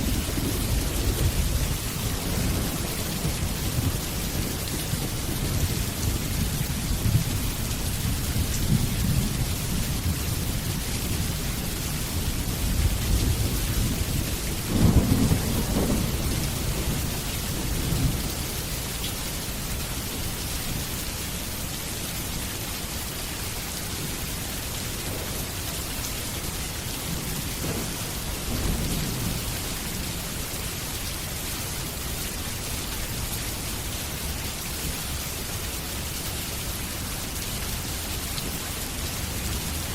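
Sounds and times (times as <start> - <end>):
thunder rumbling: 0.0 - 18.6, 24.0 - 30.6
steady rain: 0.0 - 39.9.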